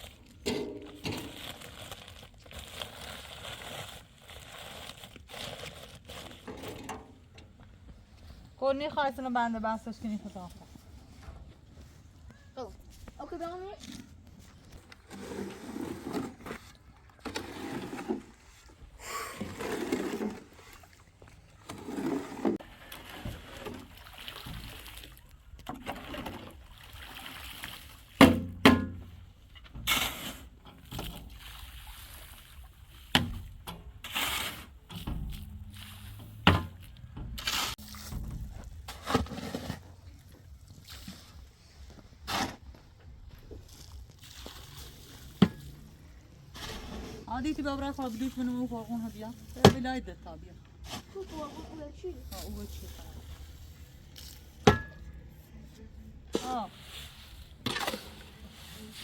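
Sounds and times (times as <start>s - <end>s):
tools scraping wet mortar: 0.0s - 7.1s, 13.7s - 20.9s, 21.5s - 23.8s, 29.6s - 31.3s, 33.2s - 40.3s, 56.3s - 59.0s.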